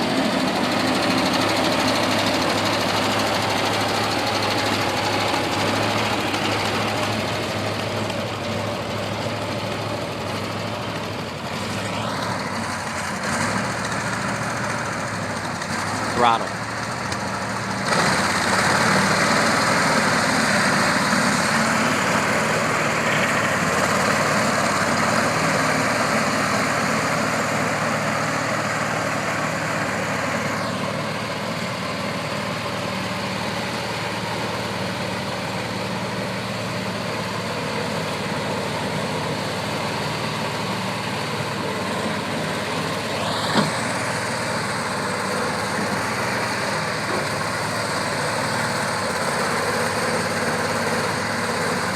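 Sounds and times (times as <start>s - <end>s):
high engine whine: 0.0s - 51.9s
skid steer engine running: 0.0s - 51.9s.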